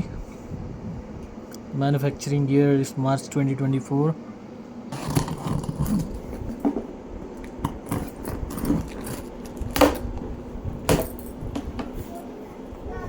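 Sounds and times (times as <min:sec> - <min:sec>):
packaging rustling: 0:07.7 - 0:09.8.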